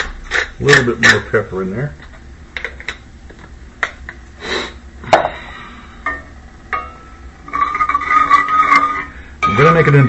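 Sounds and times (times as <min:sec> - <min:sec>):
utensils clinking against dishes: 0:06.0 - 0:10.0.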